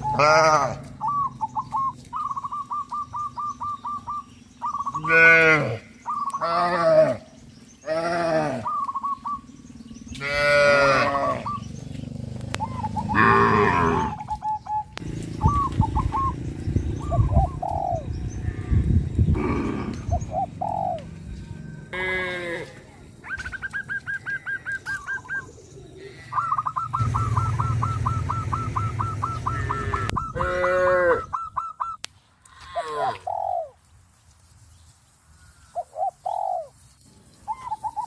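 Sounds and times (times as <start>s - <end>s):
farm animals calling: 0.0s - 33.8s, 35.4s - 38.0s
bird chirps: 0.9s - 5.2s, 5.8s - 6.5s, 8.6s - 10.5s, 11.2s - 21.9s, 23.2s - 32.1s, 34.6s - 38.0s
rapid chattering call: 23.2s - 32.0s.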